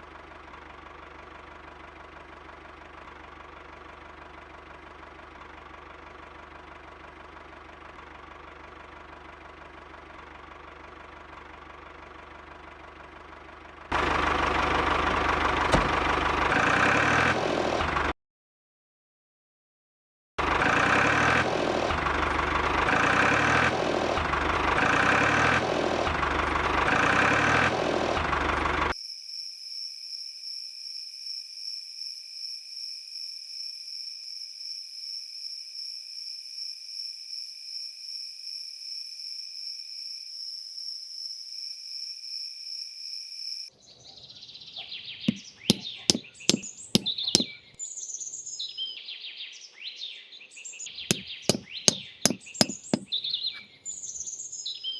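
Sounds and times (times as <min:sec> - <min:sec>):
engine-like running noise: 0:00.0 - 0:18.1, 0:20.4 - 0:28.9
sharp knocks: 0:15.7 - 0:16.0, 0:45.3 - 0:47.5, 0:51.1 - 0:53.1
birds chirping: 0:51.1 - 0:54.4.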